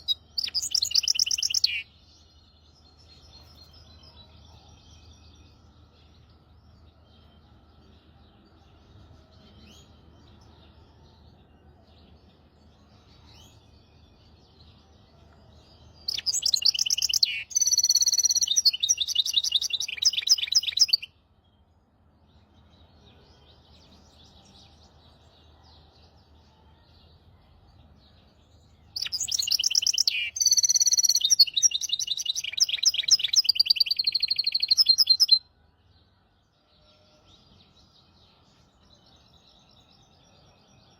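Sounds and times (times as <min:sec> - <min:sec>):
finch singing trills: 0:00.0 - 0:02.0, 0:15.9 - 0:21.1, 0:29.0 - 0:35.4
faint bird chirps: 0:00.0 - 0:21.7, 0:22.3 - 0:40.9.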